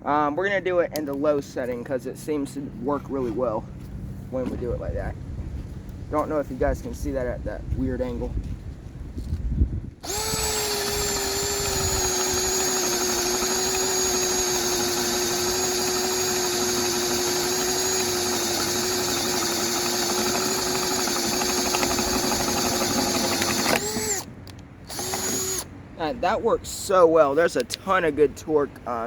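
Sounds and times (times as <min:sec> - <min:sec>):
impact driver drilling wood: 0:10.0 - 0:24.3, 0:24.9 - 0:25.7.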